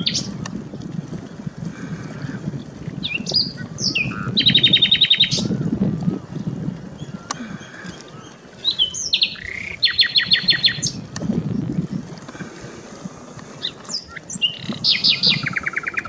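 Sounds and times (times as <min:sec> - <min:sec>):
bird singing trills: 0:03.0 - 0:05.8, 0:08.1 - 0:11.0, 0:13.6 - 0:16.0.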